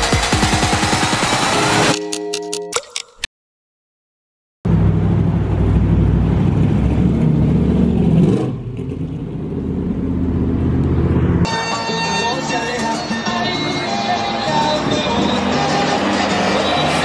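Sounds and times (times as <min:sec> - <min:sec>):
car engine rumble passing: 0:04.7 - 0:11.5.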